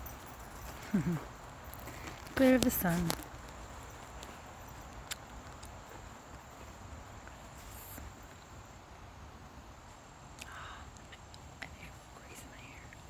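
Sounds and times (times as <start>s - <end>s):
faint ticks: 10.4s - 13.0s.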